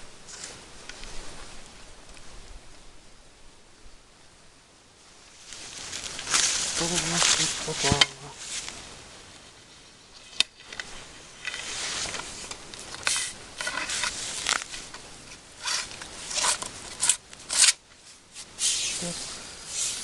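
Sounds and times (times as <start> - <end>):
fishing net rustling: 5.4 - 8.8.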